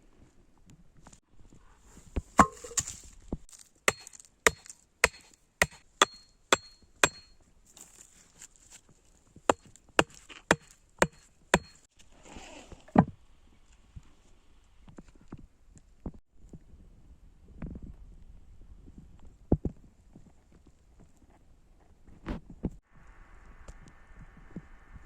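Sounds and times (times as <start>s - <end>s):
heavy thud: 2.4s - 3.0s
blade chopping wood: 2.4s - 7.3s, 9.5s - 11.8s.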